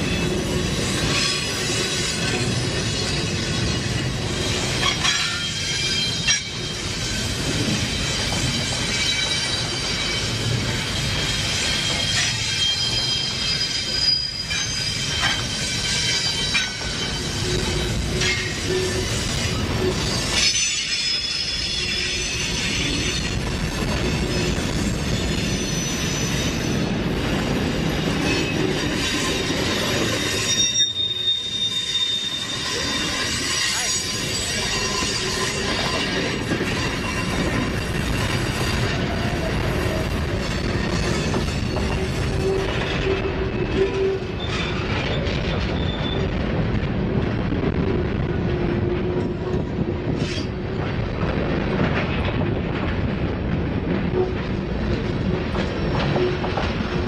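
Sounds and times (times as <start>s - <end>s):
high wheel squeals: 0.0s - 26.9s, 27.6s - 46.4s
train wheels rumbling on rail: 0.0s - 57.0s.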